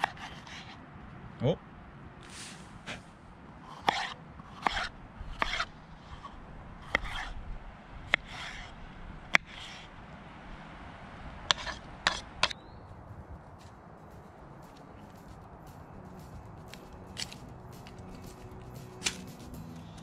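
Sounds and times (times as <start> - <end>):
knife scraping board: 3.7 - 5.7, 6.9 - 7.3, 8.1 - 8.7.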